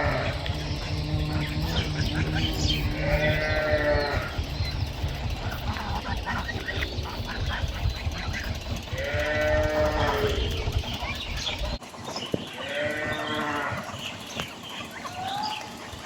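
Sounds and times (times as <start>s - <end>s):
low rumble: 0.0s - 11.8s
bird chatter: 0.0s - 16.0s
farm animal calling: 0.0s - 16.0s.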